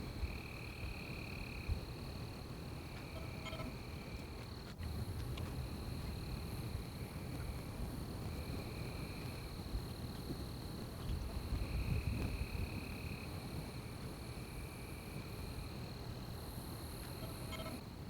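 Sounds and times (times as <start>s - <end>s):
lower insect trill: 0.1s - 4.3s, 10.5s - 17.9s
insects trilling high: 17.0s - 17.8s.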